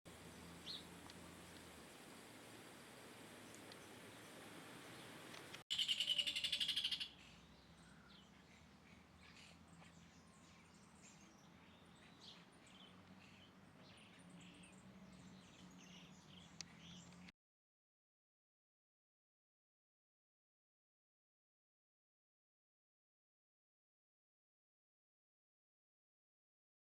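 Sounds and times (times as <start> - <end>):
small birds chirping: 0.1 - 1.8, 3.4 - 17.3
faint steady hum: 0.1 - 5.6.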